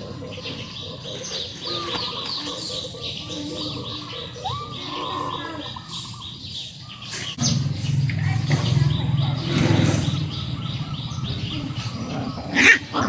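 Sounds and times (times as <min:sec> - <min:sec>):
small birds chirping: 0:00.0 - 0:13.0
loud low sound: 0:07.4 - 0:12.2.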